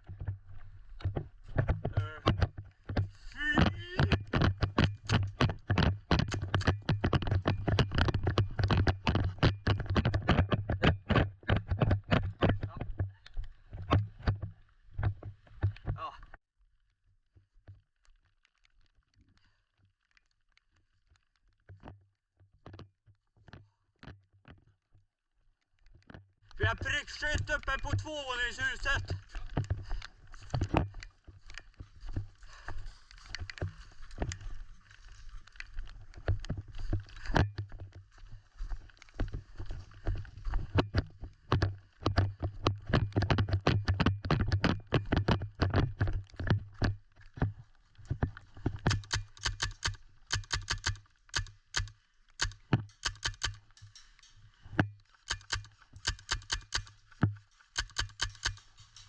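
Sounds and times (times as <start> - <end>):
rapid footsteps: 26.6 - 59.0
gear knocking: 55.3 - 56.9, 57.8 - 59.0.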